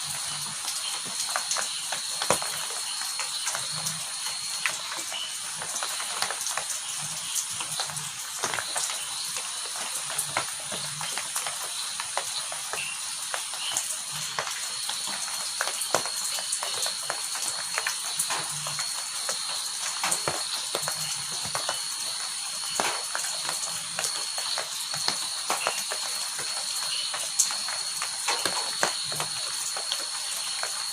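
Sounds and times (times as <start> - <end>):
heavy rain: 0.0 - 30.9.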